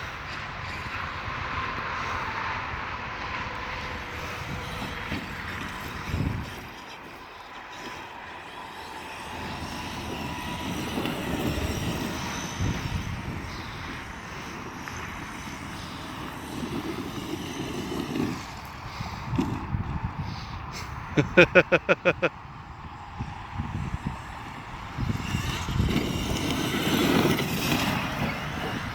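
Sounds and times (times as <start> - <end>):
tyres running over ground: 0.0 - 28.9
electric motor whining: 3.5 - 20.2, 23.2 - 28.9.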